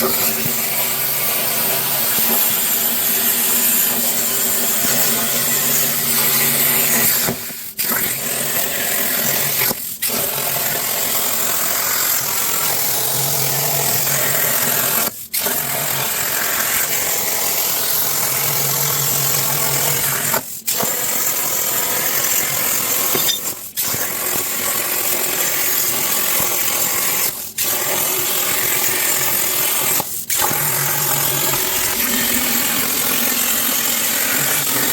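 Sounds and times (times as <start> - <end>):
plasma torch hissing: 0.0 - 7.9, 21.9 - 34.9.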